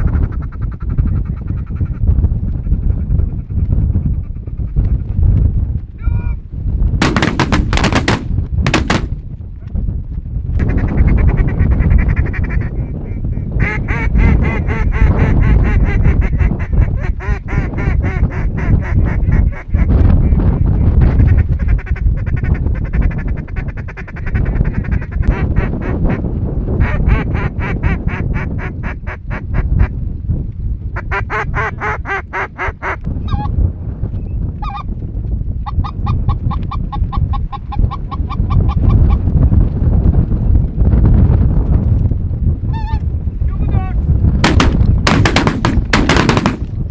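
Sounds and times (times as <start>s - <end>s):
steady low rumble: 4.8s - 10.6s, 43.2s - 46.9s.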